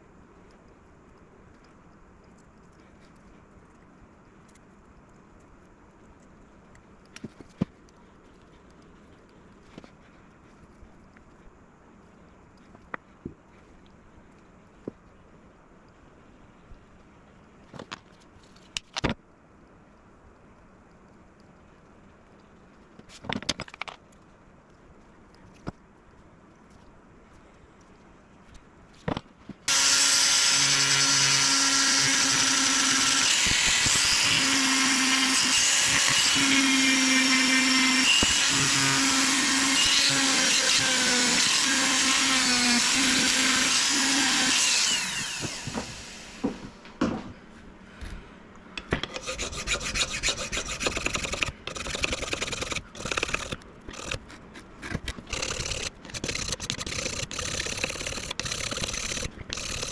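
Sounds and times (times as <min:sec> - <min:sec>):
stop-start rubbing: 0:29.7 - 0:47.4, 0:48.8 - 0:59.9
power tool whining: 0:29.7 - 0:47.5.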